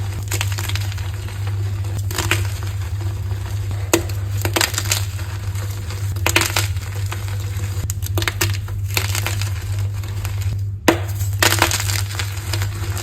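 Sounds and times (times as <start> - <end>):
chalk being crushed: 0.0 - 13.0
steady low hum: 0.0 - 13.0.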